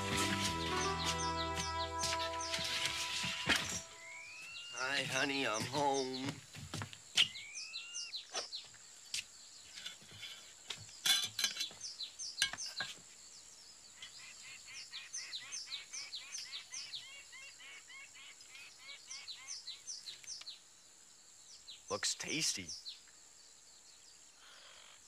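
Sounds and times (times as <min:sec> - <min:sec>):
birds chirping: 0:00.0 - 0:08.8, 0:21.5 - 0:23.1.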